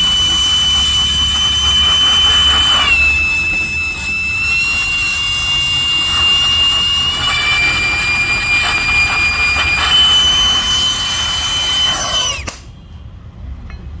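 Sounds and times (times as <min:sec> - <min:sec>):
power tool motor whining: 0:00.0 - 0:12.6.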